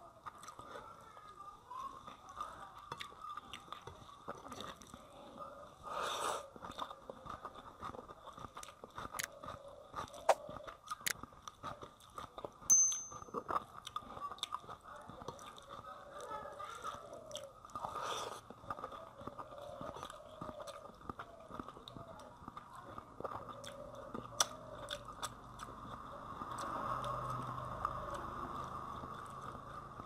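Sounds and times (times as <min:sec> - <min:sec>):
person chewing with mouth clicks: 0:06.5 - 0:12.7, 0:16.8 - 0:25.7
sharp click with high ring: 0:12.7 - 0:13.4.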